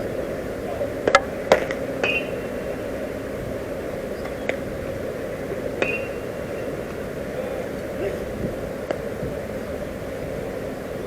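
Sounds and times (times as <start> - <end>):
outdoor ballfield ambience: 0.0 - 11.0
sharp knocks with metallic ring: 5.8 - 6.2.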